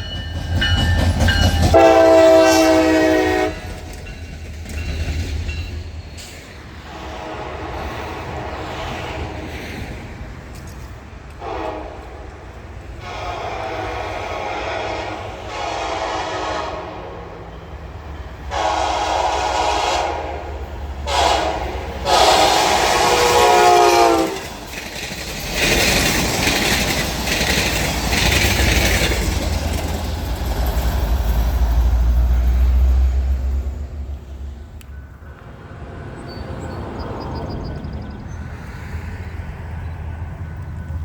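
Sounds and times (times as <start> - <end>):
train rumbling and clattering by: 0.0 - 41.0
locomotive horn blasts: 1.7 - 3.8, 6.9 - 8.6, 11.4 - 12.3, 13.0 - 17.5, 18.4 - 24.5, 35.2 - 37.2.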